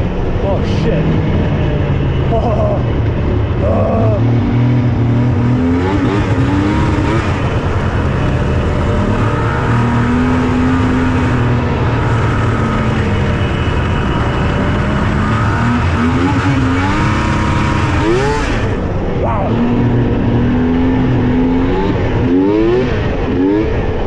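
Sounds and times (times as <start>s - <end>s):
snowmobile engine revving: 0.4s - 24.0s.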